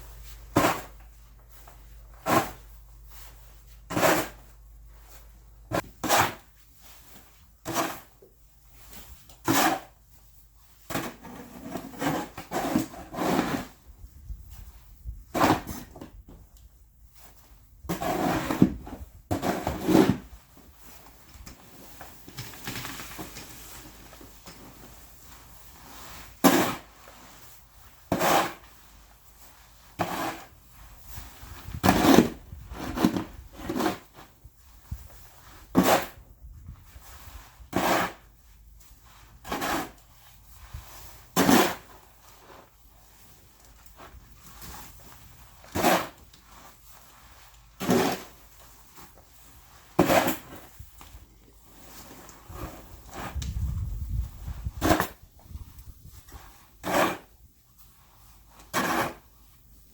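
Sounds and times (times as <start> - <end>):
short scrapes: 51.7 - 57.4, 58.2 - 59.3.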